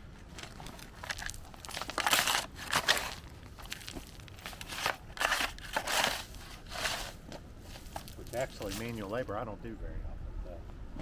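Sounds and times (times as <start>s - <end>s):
shovel scraping stony soil: 0.3s - 9.1s.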